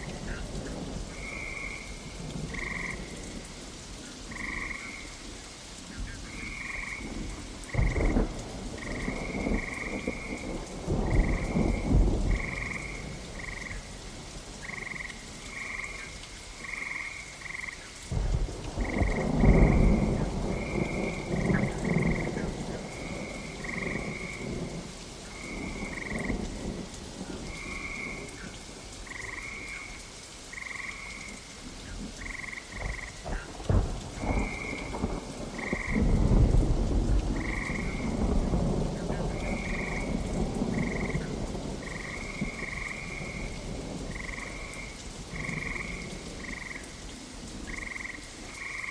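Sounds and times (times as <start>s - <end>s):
frogs croaking: 0.0s - 48.9s
steady rain: 0.0s - 48.9s
thunder rumbling: 6.0s - 16.0s, 18.1s - 29.9s, 32.0s - 48.9s.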